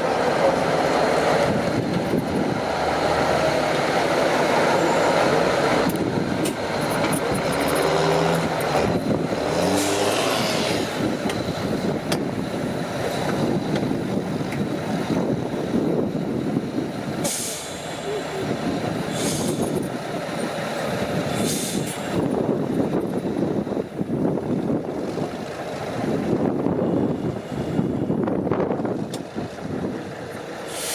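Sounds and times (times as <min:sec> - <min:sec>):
truck engine revving under load: 0:00.0 - 0:16.1.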